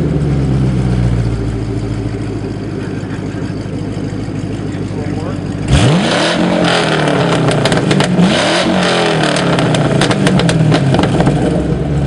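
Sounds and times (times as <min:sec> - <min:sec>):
car engine revving: 0:00.0 - 0:12.0
sharp clicks and pops: 0:07.5 - 0:08.2, 0:09.3 - 0:11.4.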